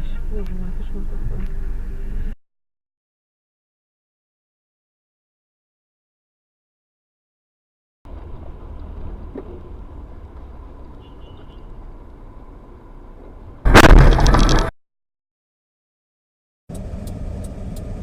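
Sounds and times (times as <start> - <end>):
vehicle road and engine rumble: 0.0 - 2.4, 8.1 - 14.7, 16.7 - 18.0
vehicle collision crash: 13.7 - 14.7.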